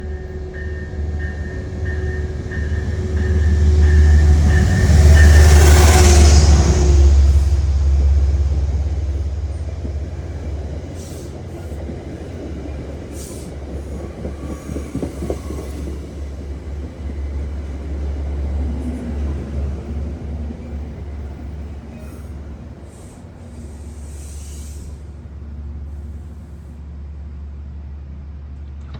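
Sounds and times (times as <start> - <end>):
locomotive bell ringing: 0.0 - 7.0
diesel locomotive rumbling past: 0.0 - 28.6.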